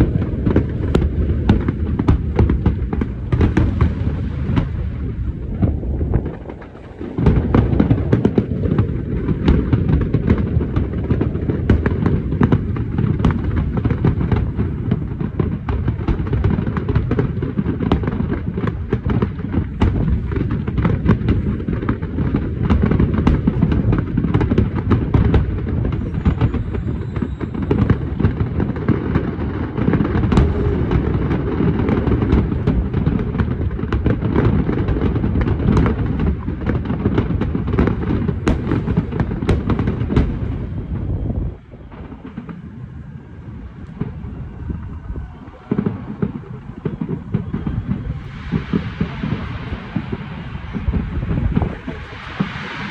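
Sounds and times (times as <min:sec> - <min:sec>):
fireworks booming and crackling: 0:00.0 - 0:52.9.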